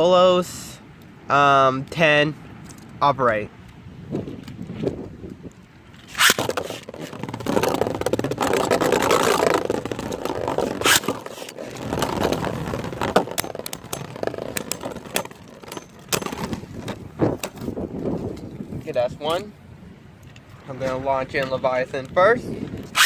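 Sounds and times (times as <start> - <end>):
spinning tops grinding and scraping: 6.0 - 16.6.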